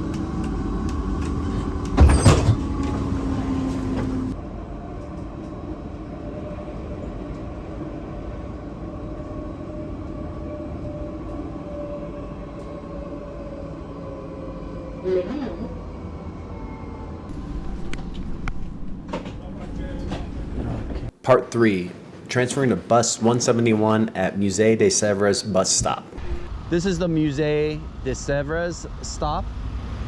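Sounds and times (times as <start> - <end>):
tram rumble and motor hum: 0.0 - 30.0
loud clunk: 2.0 - 3.1.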